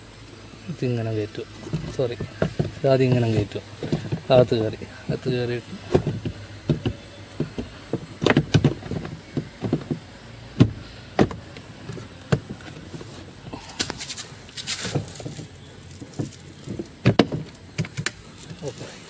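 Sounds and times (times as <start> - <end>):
scraping rustle: 0.8 - 19.0
plastic clicks and knocks: 1.7 - 11.6.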